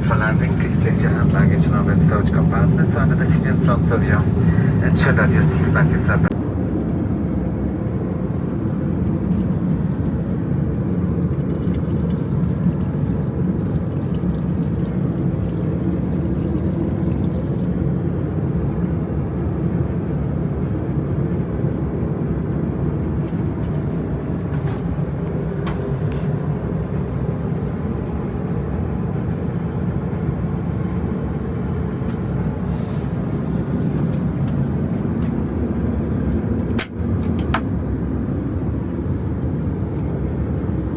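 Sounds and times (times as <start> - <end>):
airplane cabin drone: 0.0 - 6.4.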